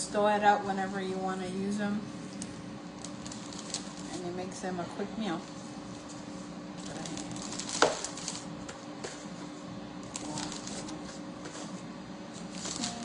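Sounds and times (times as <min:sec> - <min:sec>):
faint steady hum: 0:00.0 - 0:13.0
plastic bags rustling and crinkling: 0:03.0 - 0:04.4, 0:05.3 - 0:08.6, 0:10.0 - 0:13.0.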